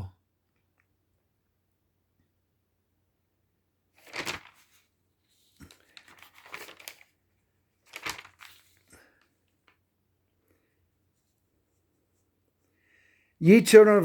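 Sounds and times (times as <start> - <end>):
rustling crinkling noise: 4.0 - 9.9.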